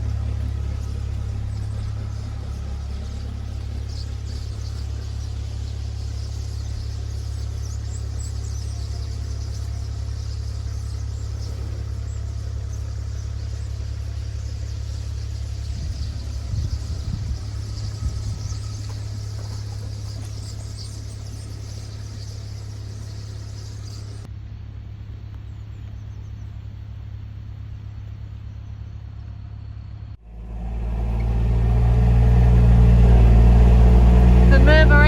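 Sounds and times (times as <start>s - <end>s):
engine running: 0.0s - 35.0s.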